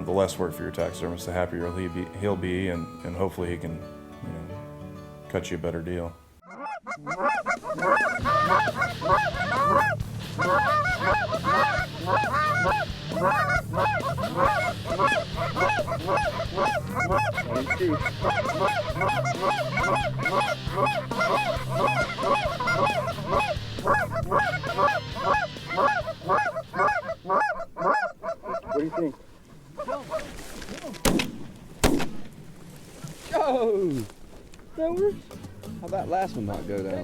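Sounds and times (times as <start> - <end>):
geese honking: 6.4 - 30.7.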